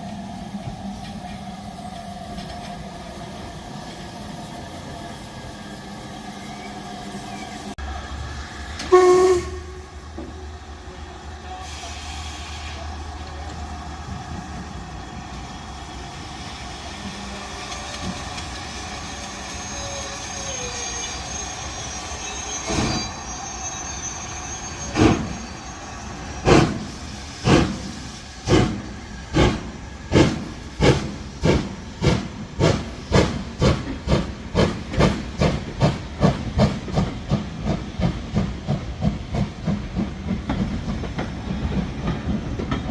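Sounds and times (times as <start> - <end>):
steam hissing: 0.0 - 42.8.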